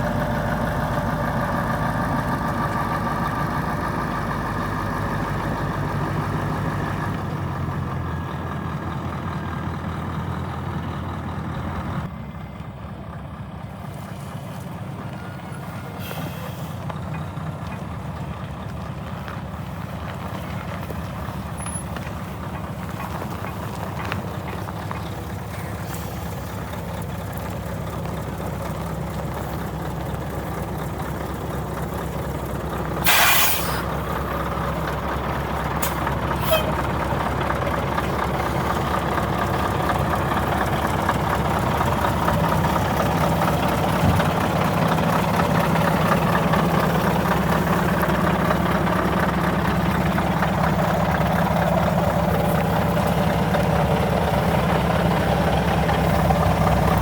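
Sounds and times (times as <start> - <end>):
diesel truck engine idling: 0.0 - 57.0
compressed air hiss: 33.0 - 33.9.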